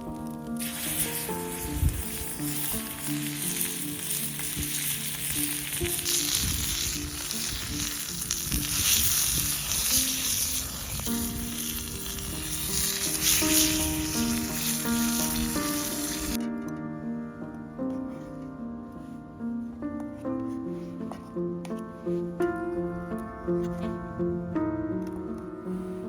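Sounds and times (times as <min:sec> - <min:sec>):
soft background music: 0:00.0 - 0:26.0
food sizzling in a pan: 0:00.6 - 0:16.4.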